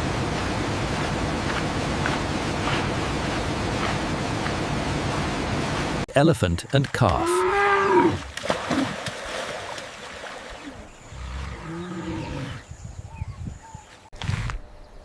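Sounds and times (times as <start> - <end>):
elephant calling: 7.1 - 8.3.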